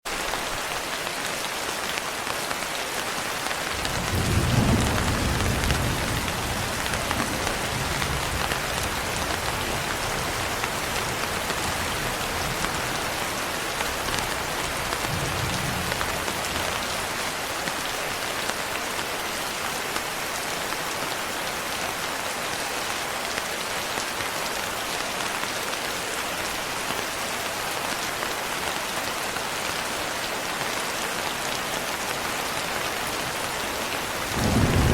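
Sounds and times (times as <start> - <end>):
heavy rain pattering: 0.1 - 34.9
thunder rumbling: 3.8 - 13.1, 34.2 - 34.9.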